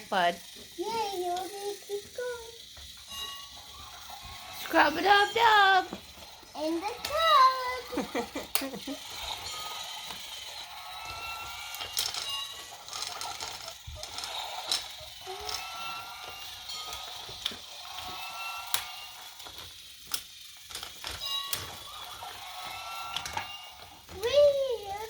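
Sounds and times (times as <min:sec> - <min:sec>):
toy train motor whirring: 0:00.0 - 0:25.0
wheels clicking on track joints: 0:00.0 - 0:25.0
wheels squeaking: 0:00.0 - 0:25.0.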